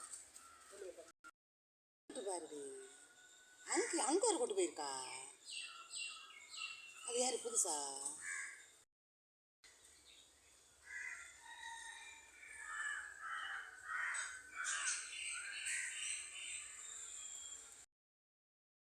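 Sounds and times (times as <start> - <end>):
crows cawing: 0.0 - 0.9, 3.7 - 4.2, 5.6 - 6.6, 8.2 - 8.7, 10.8 - 16.7.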